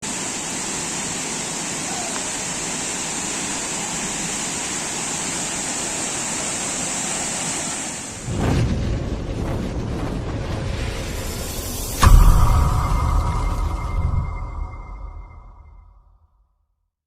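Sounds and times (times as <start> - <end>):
waterfall rushing: 0.0 - 8.3
sudden deep boom: 8.2 - 16.3.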